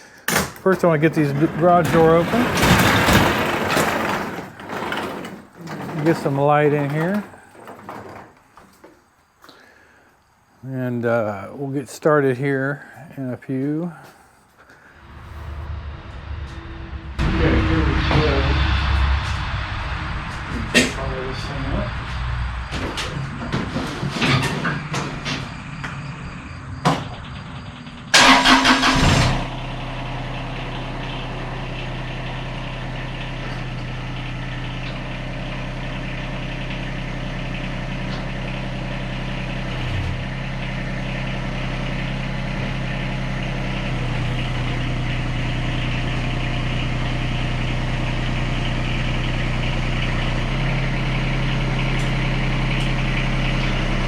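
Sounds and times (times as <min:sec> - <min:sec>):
tractor diesel engine idling: 0:00.0 - 0:08.2, 0:22.7 - 0:54.0
starter cranking diesel engine: 0:00.0 - 0:08.6, 0:23.0 - 0:54.0.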